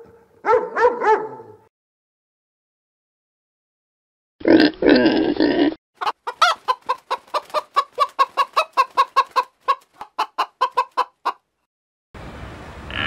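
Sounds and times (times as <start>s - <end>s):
chicken clucking: 6.0s - 11.5s.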